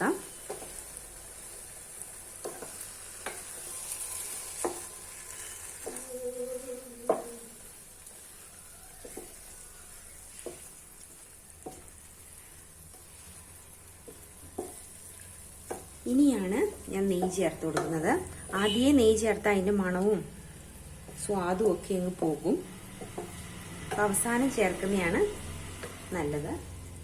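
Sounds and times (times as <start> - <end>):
food sizzling in a pan: 0.0 - 27.0
spoon scraping a pan: 2.4 - 7.5.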